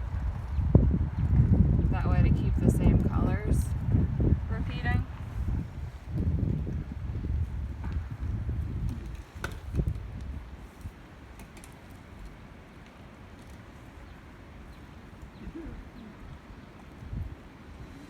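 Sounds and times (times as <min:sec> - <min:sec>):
wind buffeting microphone: 0:00.0 - 0:12.7, 0:13.6 - 0:18.0
dove cooing faintly: 0:15.3 - 0:16.4.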